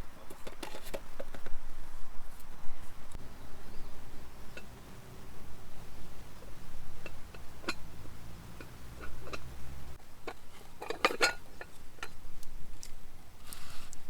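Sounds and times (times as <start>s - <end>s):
camp cookware clinking: 3.2s - 13.0s.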